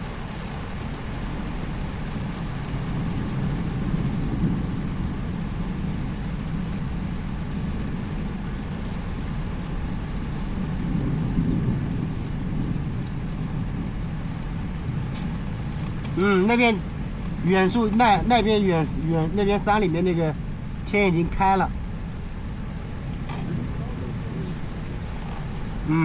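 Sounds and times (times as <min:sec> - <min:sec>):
steady rain: 0:00.0 - 0:26.0
low even rumble: 0:10.9 - 0:26.0.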